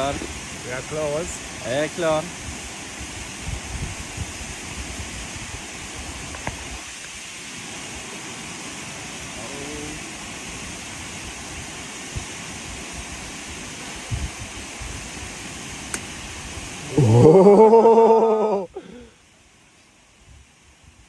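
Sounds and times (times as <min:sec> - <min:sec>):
waterfall roaring: 0:00.0 - 0:19.0
wind buffeting microphone: 0:02.3 - 0:07.0, 0:11.1 - 0:15.4.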